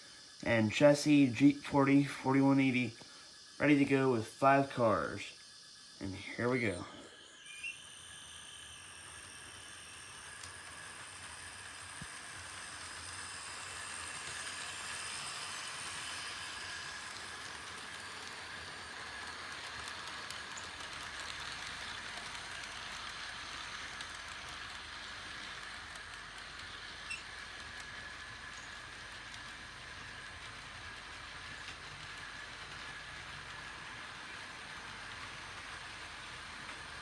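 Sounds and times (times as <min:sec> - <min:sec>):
thin high whine: 0:00.0 - 0:23.0
model train motor whir: 0:00.0 - 0:37.0.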